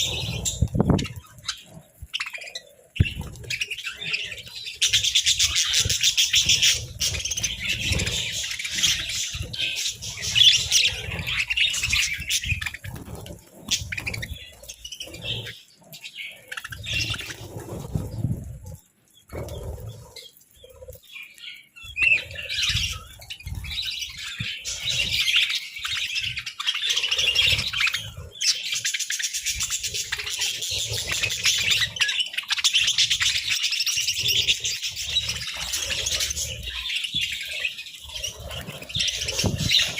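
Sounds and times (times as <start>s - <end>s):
budgerigars chattering and warbling: 0.0s - 18.0s, 19.3s - 39.9s.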